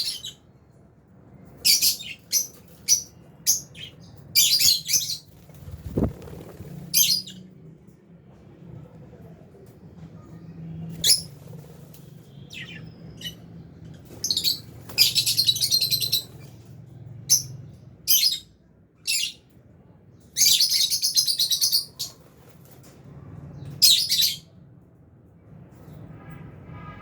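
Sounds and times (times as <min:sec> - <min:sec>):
birds rapid chattering: 0:01.6 - 0:07.4.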